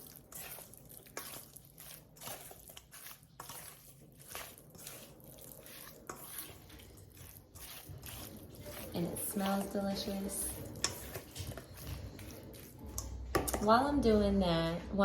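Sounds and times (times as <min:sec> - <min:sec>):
wet squishing food in bowl: 0:00.0 - 0:14.2.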